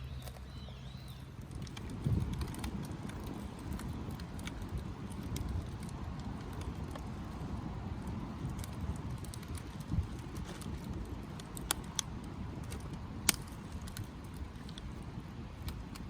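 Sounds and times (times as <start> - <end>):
wind rumble on microphone: 0.0 - 16.0
wood fire crackling and popping: 0.0 - 16.0.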